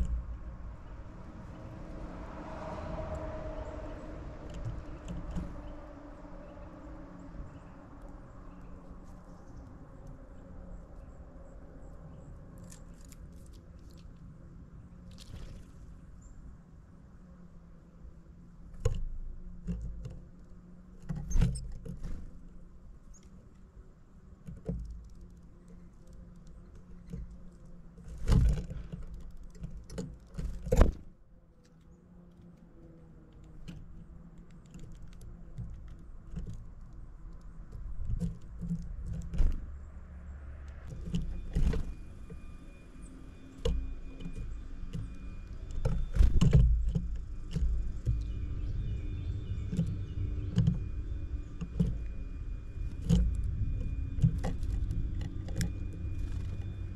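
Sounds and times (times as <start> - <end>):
low steady rumble: 0.0 - 30.7, 33.5 - 56.9
birds pecking and tapping: 4.4 - 5.9, 18.8 - 22.3, 24.4 - 31.0, 31.7 - 39.7, 43.4 - 56.9.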